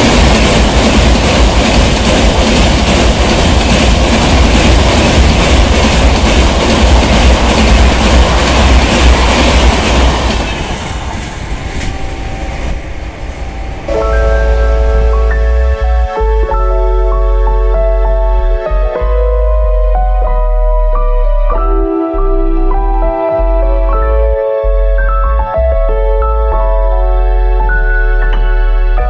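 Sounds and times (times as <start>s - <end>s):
train wheels rumbling on rails: 0.0s - 20.3s
music: 13.9s - 29.0s.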